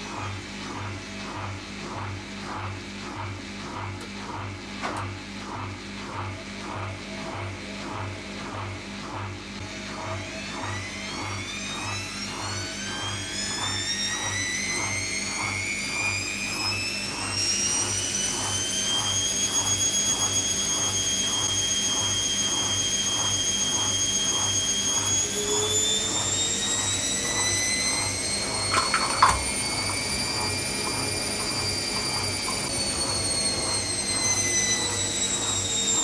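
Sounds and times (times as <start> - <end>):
washing machine spinning: 0.0 - 36.0
washing machine knock: 28.7 - 30.0.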